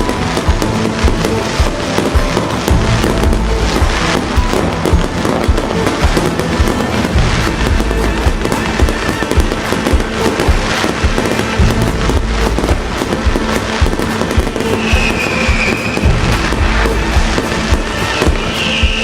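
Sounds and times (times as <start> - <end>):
firework bangs and crackling: 0.0 - 19.0
short falling whistle: 18.2 - 19.0.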